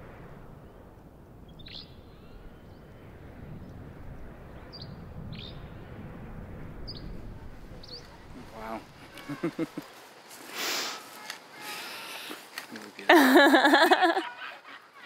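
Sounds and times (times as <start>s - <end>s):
low outdoor rumble: 0.0s - 10.4s
small bird chirping: 1.5s - 2.8s, 4.5s - 5.8s, 6.8s - 7.2s, 7.8s - 9.6s.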